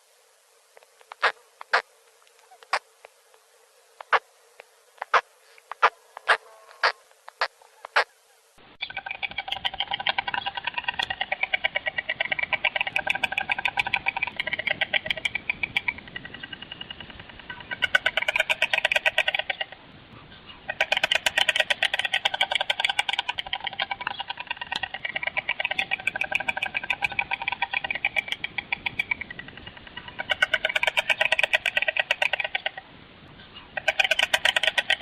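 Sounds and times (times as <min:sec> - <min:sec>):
stork bill-clattering: 0:08.9 - 0:19.6, 0:20.7 - 0:32.8.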